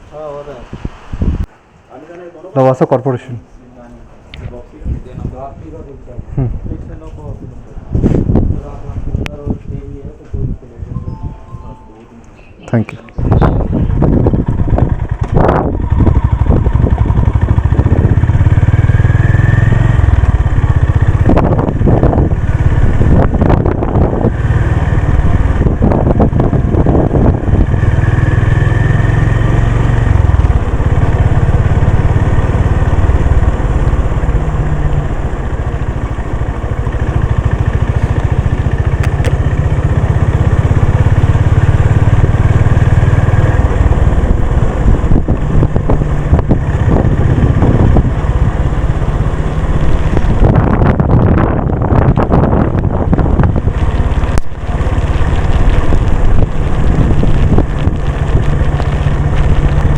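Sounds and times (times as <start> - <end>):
motorcycle engine accelerating: 13.2 - 59.9.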